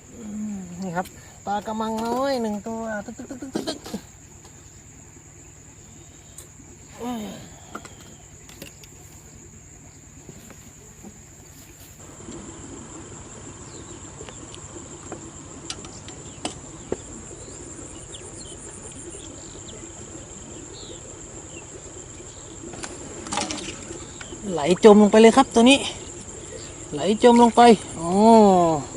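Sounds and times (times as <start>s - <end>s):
insects droning: 0.0s - 28.9s
faint clicks and chirps: 7.7s - 11.7s, 13.7s - 24.4s.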